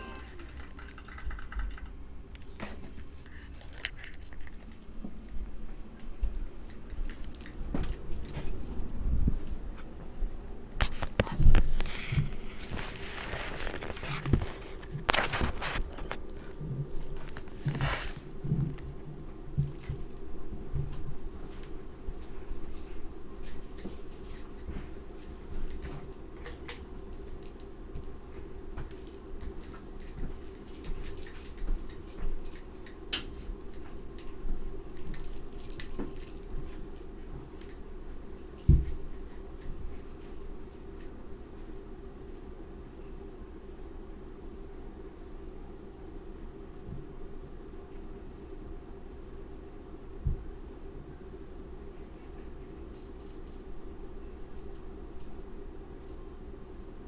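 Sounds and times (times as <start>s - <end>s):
faint steady hum: 0.0s - 57.0s
scraping rustles: 10.8s - 18.7s.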